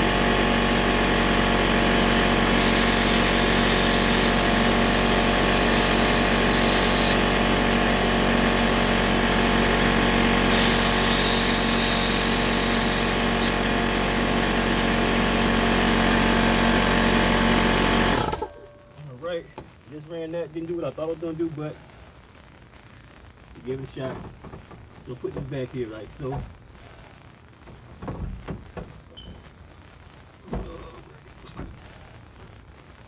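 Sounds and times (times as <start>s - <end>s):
air compressor running: 0.0s - 18.6s
compressed air hissing: 2.5s - 7.3s, 10.5s - 13.6s.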